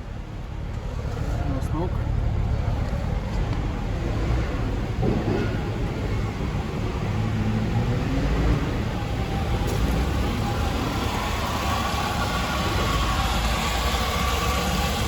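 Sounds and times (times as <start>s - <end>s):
car engine running: 8.6s - 15.0s.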